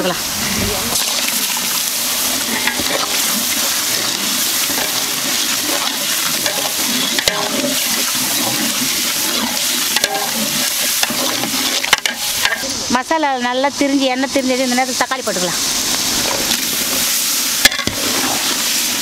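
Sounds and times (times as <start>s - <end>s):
onions sizzling in oil: 0.0s - 19.0s
metal ladle scraping pot: 0.9s - 12.8s, 16.0s - 19.0s.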